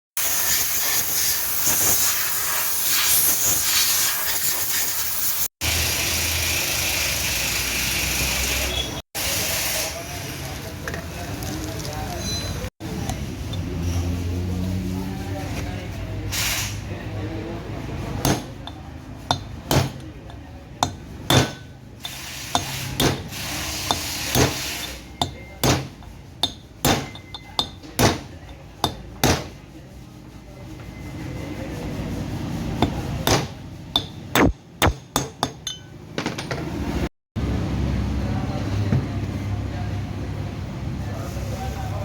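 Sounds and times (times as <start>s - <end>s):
hammer striking metal: 18.2s - 20.2s, 20.8s - 29.6s, 32.8s - 36.7s.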